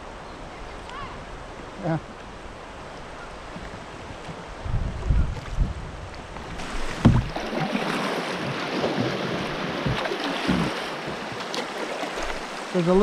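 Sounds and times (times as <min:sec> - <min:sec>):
water splashing around kayak: 0:00.0 - 0:13.0
dull low thumps: 0:04.6 - 0:07.5.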